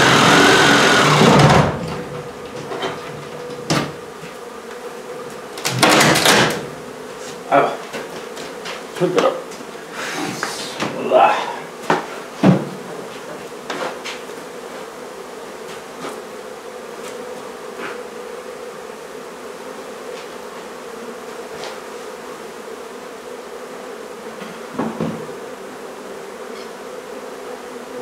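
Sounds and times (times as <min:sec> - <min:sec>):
honey bees buzzing: 0:00.0 - 0:28.0
knocks on a hive: 0:05.6 - 0:06.8, 0:11.8 - 0:12.9, 0:24.4 - 0:25.4.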